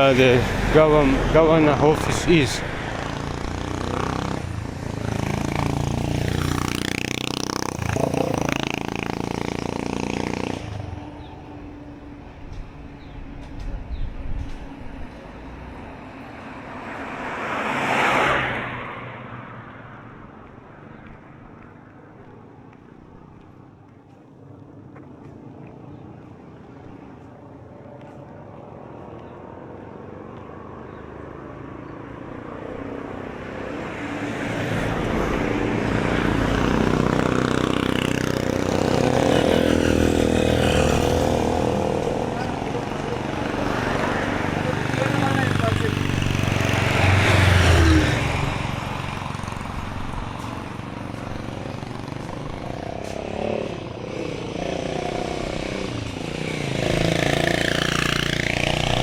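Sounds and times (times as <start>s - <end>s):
vehicle passing close by: 0.0s - 21.7s, 28.7s - 59.0s
passing motor vehicles: 0.0s - 59.0s.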